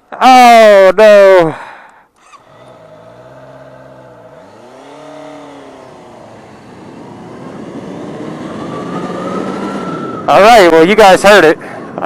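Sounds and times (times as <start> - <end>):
vehicle engine revving: 2.2 - 10.3.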